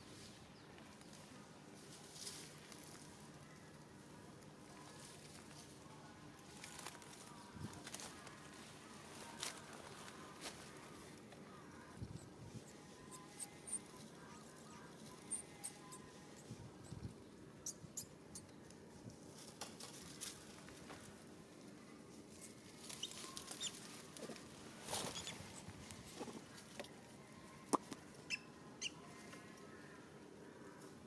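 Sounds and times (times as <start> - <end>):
high-pitched animal squeaks: 13.1 - 14.4, 23.0 - 23.8, 25.0 - 25.6, 28.3 - 29.0.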